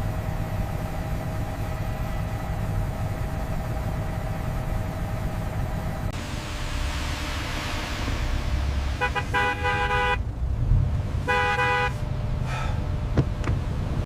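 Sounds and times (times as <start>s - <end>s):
steady low rumble: 0.0s - 14.0s
car horn honking: 8.9s - 10.2s, 11.2s - 12.0s.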